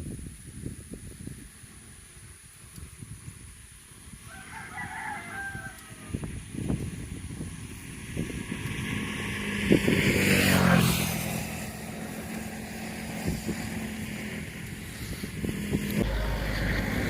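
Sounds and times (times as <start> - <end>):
vehicle passing on road: 8.0 - 17.0.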